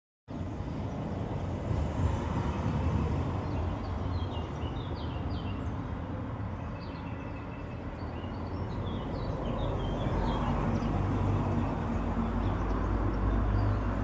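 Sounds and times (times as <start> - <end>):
small birds chirping: 3.4 - 14.0.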